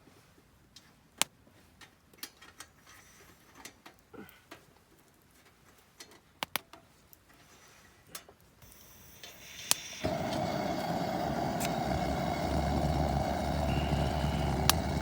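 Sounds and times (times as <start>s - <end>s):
campfire crackling: 8.6s - 15.0s.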